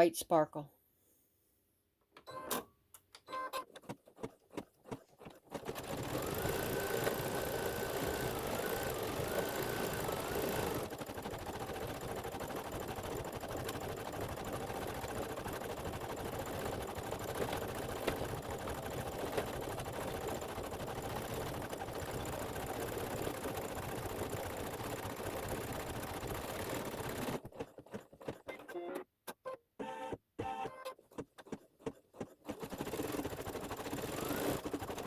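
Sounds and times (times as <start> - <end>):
embroidery machine needle rattle: 4.1 - 28.5.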